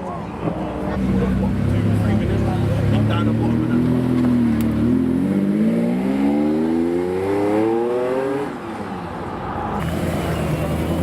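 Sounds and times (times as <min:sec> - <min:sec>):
car engine accelerating hard: 0:09.8 - 0:11.0.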